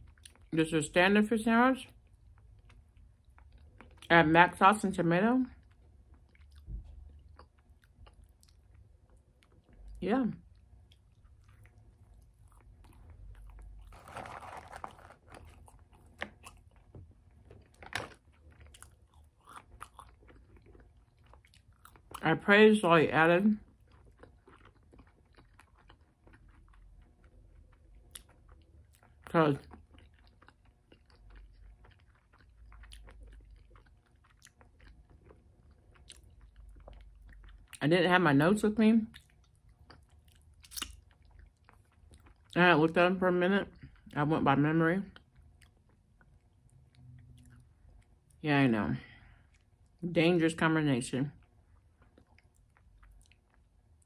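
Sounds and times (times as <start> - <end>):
chewing and biting food: 1.9 - 4.1, 5.5 - 22.3, 23.6 - 37.8, 39.1 - 42.6, 51.4 - 54.0
food crunching: 5.6 - 22.3, 23.6 - 37.8, 39.1 - 42.6, 51.4 - 54.0.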